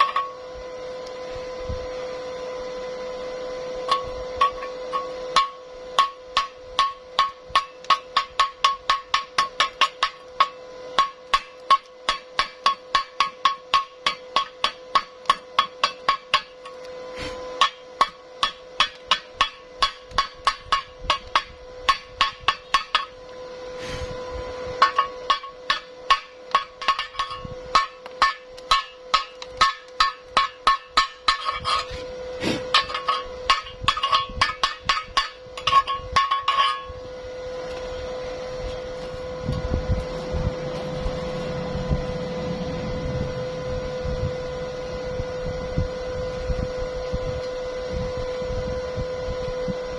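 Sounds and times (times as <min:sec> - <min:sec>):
hammer striking metal: 0:00.0 - 0:00.4, 0:03.9 - 0:16.8, 0:17.6 - 0:23.2, 0:24.8 - 0:32.0, 0:32.6 - 0:37.0
steady hum with low rumble: 0:00.0 - 0:49.9.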